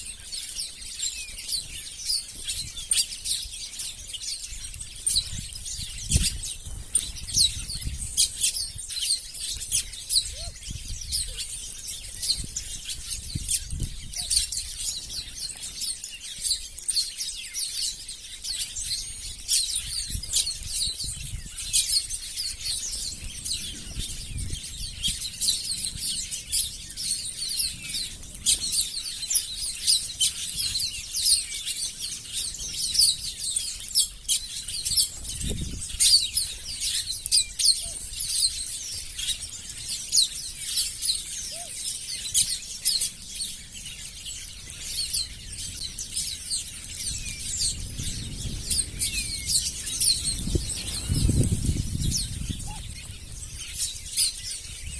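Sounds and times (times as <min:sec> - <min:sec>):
small birds chirping: 0:00.0 - 0:54.9
wings fluttering: 0:45.8 - 0:54.2.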